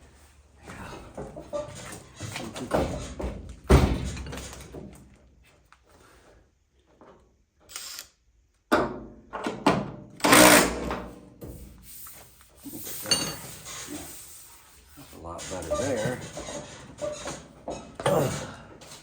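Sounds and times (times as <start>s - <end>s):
metal clunks and scraping: 0.7s - 5.1s, 12.8s - 19.0s.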